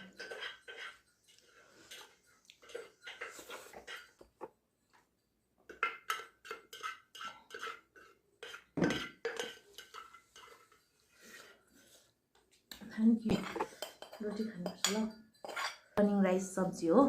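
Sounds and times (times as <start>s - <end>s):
cutlery clinking on a plate: 0.0s - 4.5s, 5.7s - 10.9s, 13.3s - 15.9s.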